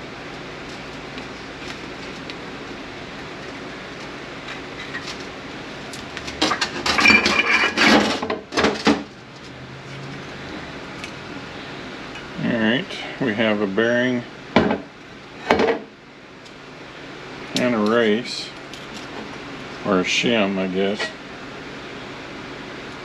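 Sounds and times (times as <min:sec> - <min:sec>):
metal parts clinking: 0:06.6 - 0:08.2.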